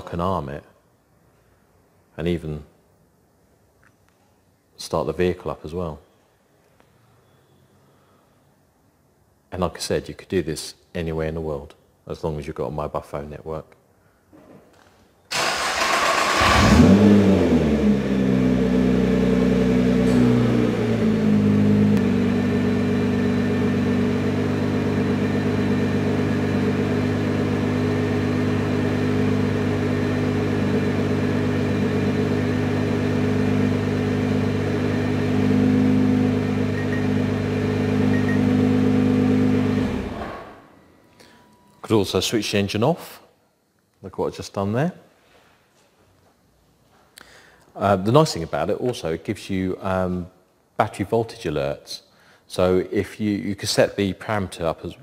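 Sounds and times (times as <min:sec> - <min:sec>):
car engine starting and idling: 0:15.3 - 0:40.8.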